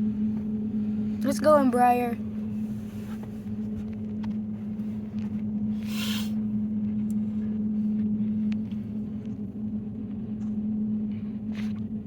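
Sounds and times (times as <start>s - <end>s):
low rumble inside car: 0.0s - 12.0s
low-pitched hum: 0.0s - 12.0s
short hiss: 5.8s - 6.4s.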